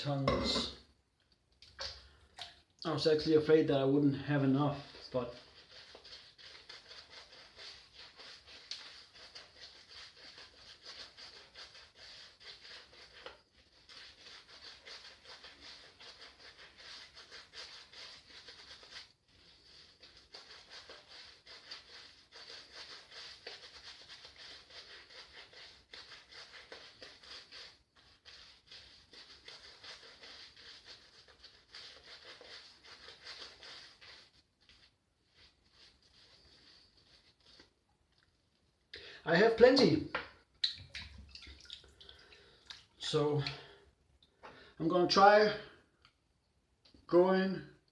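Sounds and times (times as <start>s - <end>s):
shaving brush swishing lather: 3.1s - 37.8s, 43.0s - 43.8s.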